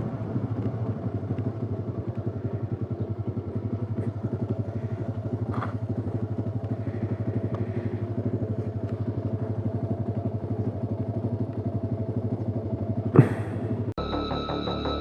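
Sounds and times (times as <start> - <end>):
motorcycle engine idling: 0.0 - 15.0
music: 14.0 - 15.0.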